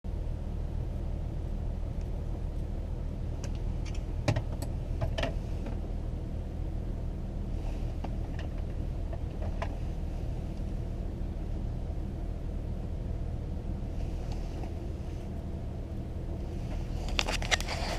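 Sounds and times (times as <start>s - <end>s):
diesel engine idling: 0.1s - 17.9s.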